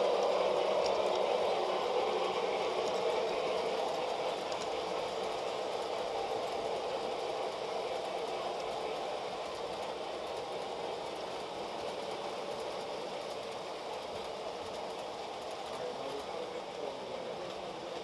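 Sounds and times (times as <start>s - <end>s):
model train motors whirring: 0.0s - 18.0s.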